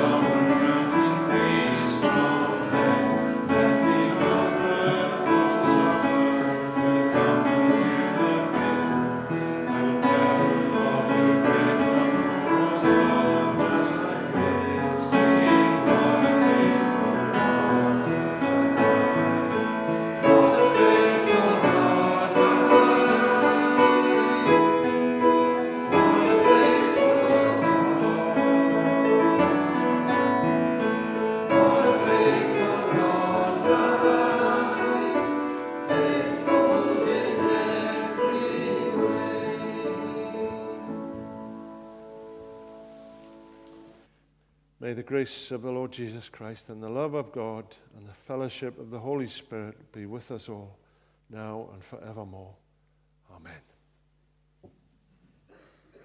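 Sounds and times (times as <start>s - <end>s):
congregation singing a hymn: 0.0s - 44.1s.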